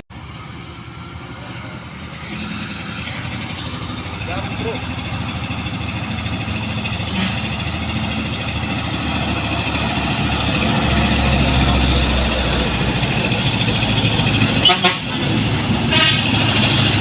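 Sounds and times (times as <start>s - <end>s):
heavy truck engine running: 0.1s - 17.0s.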